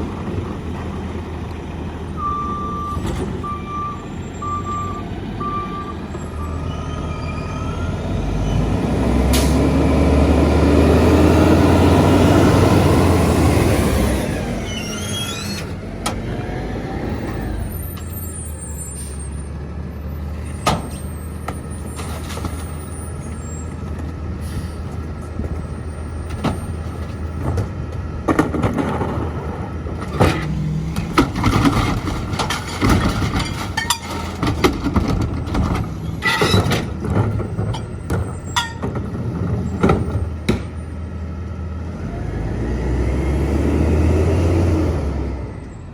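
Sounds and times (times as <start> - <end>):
diesel truck engine revving: 0.0 - 21.9, 28.9 - 32.9, 34.8 - 45.9
clanks and knocks: 24.9 - 40.8.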